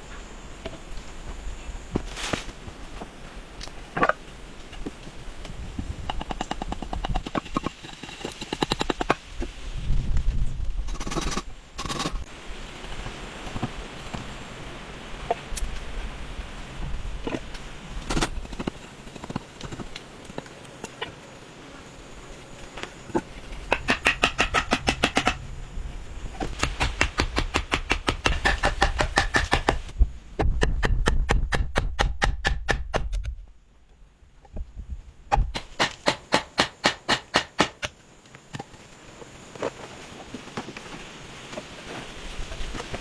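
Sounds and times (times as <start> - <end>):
rapid tool strokes on wood: 6.1 - 9.4, 10.9 - 12.3.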